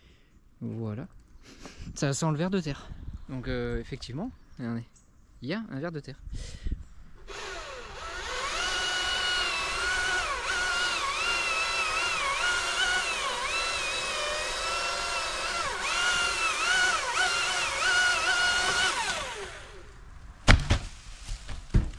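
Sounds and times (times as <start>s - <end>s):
chainsaw cutting wood: 7.2s - 19.9s.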